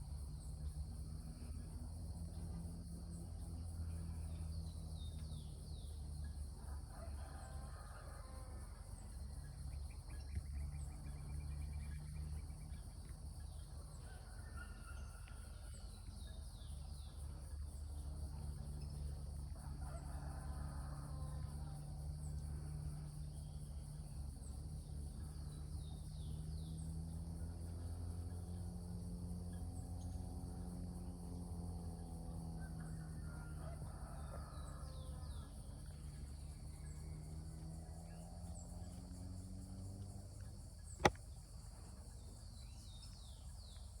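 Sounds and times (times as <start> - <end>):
sharp click: 41.0 - 41.2.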